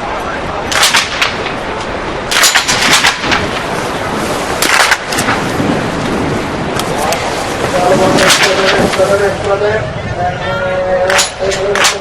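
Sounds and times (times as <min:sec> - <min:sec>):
wind noise: 0:00.0 - 0:12.0
rifle shots cracking: 0:00.7 - 0:01.6, 0:02.3 - 0:03.7, 0:04.6 - 0:05.4, 0:08.2 - 0:08.8.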